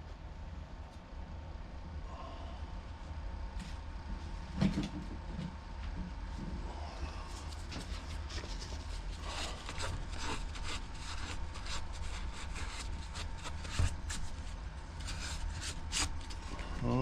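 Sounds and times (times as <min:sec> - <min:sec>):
steady low hum: 0:00.0 - 0:17.0
hands scraping and rubbing parts: 0:07.4 - 0:16.5.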